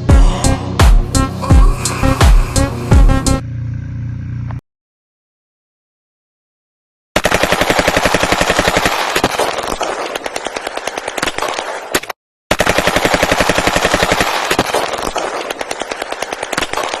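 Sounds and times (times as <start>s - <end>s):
rapid automatic gunfire: 7.2s - 17.0s.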